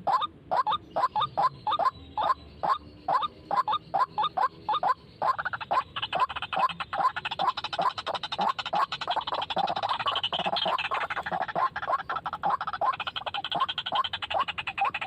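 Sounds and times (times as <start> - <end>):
waterhen croaking calls: 0.0 - 15.0
fast clicking bird notes: 5.3 - 15.0.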